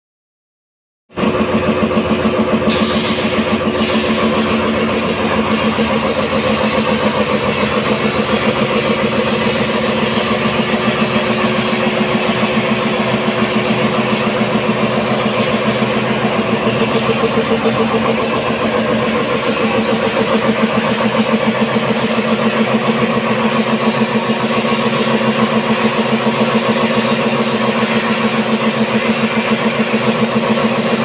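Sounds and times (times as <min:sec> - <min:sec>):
engine idling: 0:01.1 - 0:31.0
short hisses: 0:02.7 - 0:04.4.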